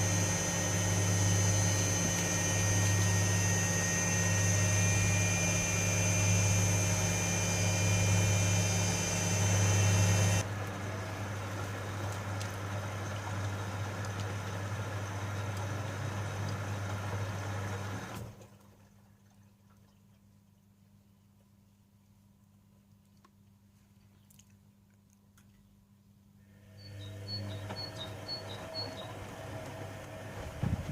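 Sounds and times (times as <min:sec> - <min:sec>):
washing machine motor hum: 0:00.0 - 0:19.2, 0:26.5 - 0:30.9
washing machine whine: 0:00.0 - 0:19.4, 0:26.4 - 0:30.9.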